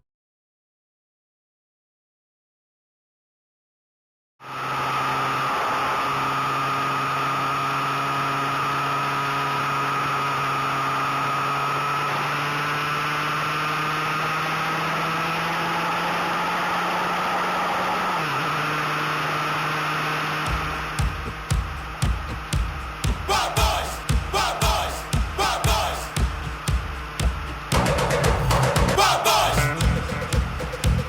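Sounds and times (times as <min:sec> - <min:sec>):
motorcycle engine accelerating: 0:04.5 - 0:24.8, 0:29.6 - 0:31.0.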